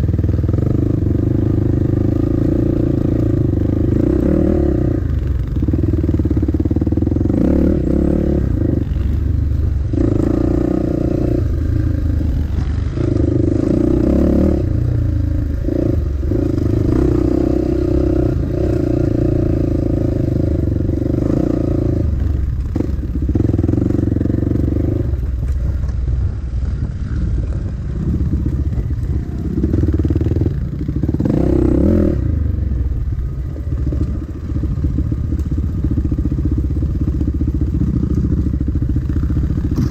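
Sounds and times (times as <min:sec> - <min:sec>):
dirt bike engine revving: 0:00.0 - 0:25.4, 0:27.9 - 0:32.8.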